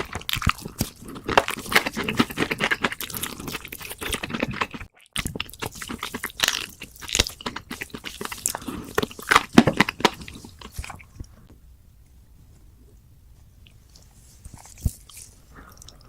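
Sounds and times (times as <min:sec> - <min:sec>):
crunchy chewing: 0:00.0 - 0:11.5.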